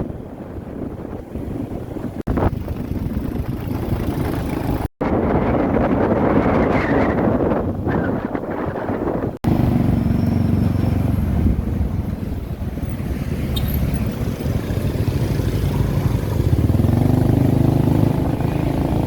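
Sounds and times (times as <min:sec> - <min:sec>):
wind rushing over microphone: 0:00.0 - 0:19.0
motorbike engine running: 0:02.3 - 0:04.9.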